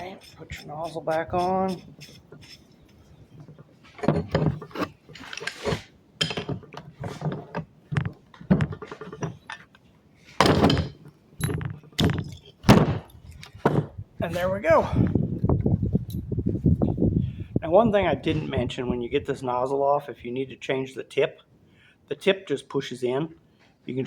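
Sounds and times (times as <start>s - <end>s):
metal parts clinking and scraping: 2.0s - 9.8s, 10.4s - 13.6s.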